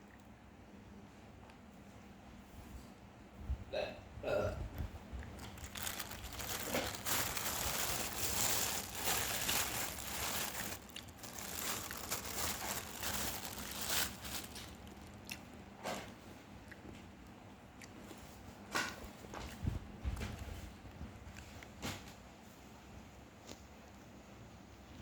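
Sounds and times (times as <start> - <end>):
plastic packaging crinkling and tearing: 5.3 - 15.6.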